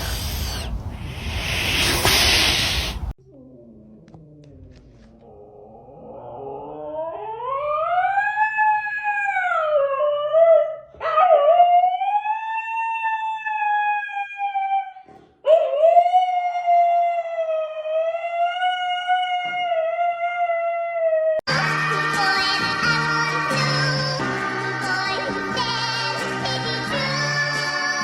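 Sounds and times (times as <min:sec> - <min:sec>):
dog breathing: 0:00.0 - 0:03.2
dog howling: 0:05.6 - 0:14.9.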